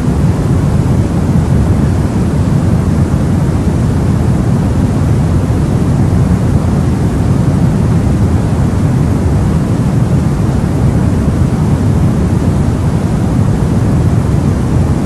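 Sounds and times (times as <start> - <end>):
white noise hiss: 0.0 - 15.0.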